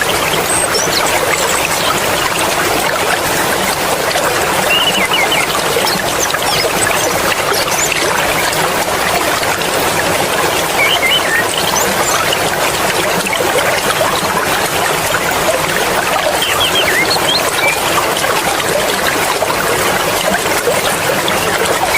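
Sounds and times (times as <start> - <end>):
mountain stream flowing: 0.0 - 21.9
high-pitched chirps: 10.8 - 12.3, 16.4 - 17.8.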